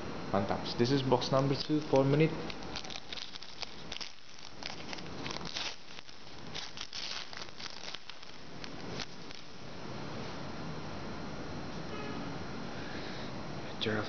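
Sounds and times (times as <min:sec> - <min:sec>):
plastic wrapper tearing and crinkling: 0:01.5 - 0:09.6.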